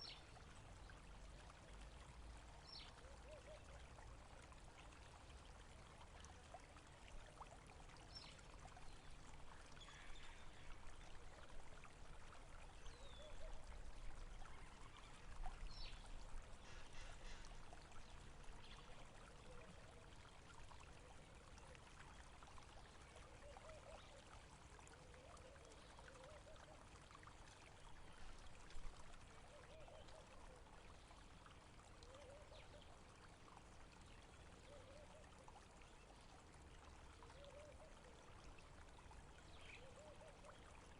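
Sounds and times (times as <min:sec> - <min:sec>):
stream trickling and gurgling: 0:00.0 - 0:40.9.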